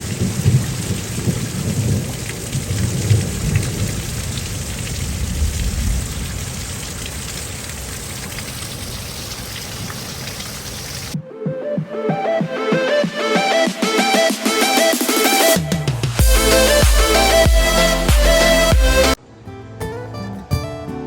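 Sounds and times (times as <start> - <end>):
heavy rain falling: 0.0 - 11.2, 13.9 - 19.2
low rolling thunder: 0.1 - 7.2.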